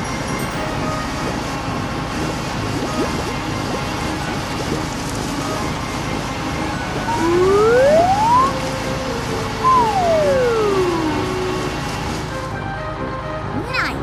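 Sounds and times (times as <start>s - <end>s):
steady background noise: 0.0s - 14.0s
cartoon whistle gliding: 7.0s - 8.6s, 9.6s - 11.7s.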